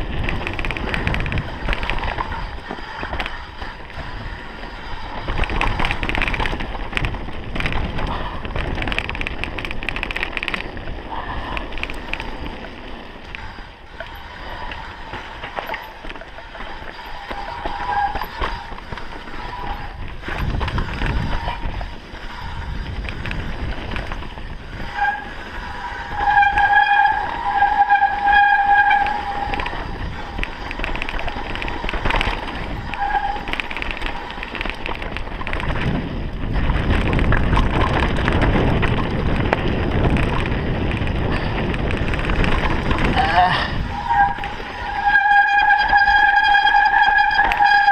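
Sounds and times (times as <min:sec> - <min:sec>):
bike rattling on rough trail: 0:00.0 - 0:47.9
wind rush: 0:00.0 - 0:47.9
high brake squeal: 0:16.9 - 0:18.8, 0:24.9 - 0:29.8, 0:43.8 - 0:47.9.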